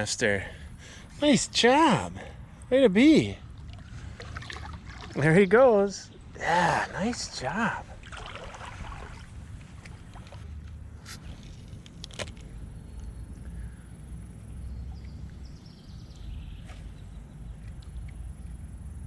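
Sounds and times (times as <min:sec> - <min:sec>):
steady low rumble: 0:06.0 - 0:19.0.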